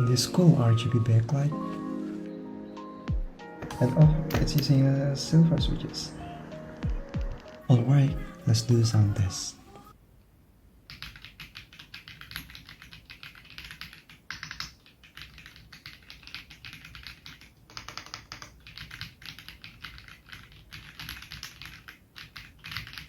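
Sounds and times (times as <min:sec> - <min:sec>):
mechanical keyboard typing: 0:10.9 - 0:23.0.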